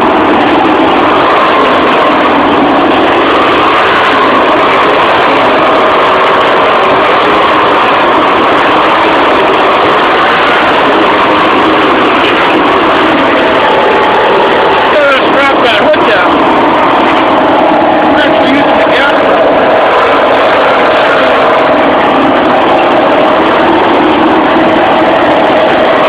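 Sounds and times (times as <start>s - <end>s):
lawn tractor engine running: 0.0s - 26.0s.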